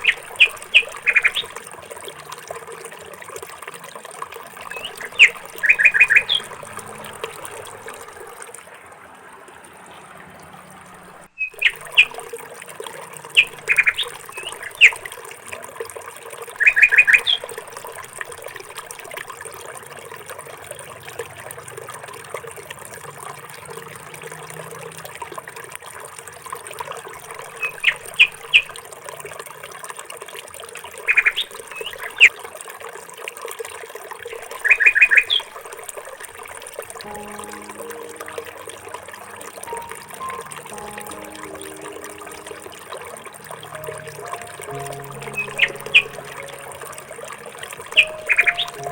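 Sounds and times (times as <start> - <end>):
bird calling: 0.0 - 1.6, 4.7 - 7.8, 13.3 - 15.0, 43.8 - 48.9.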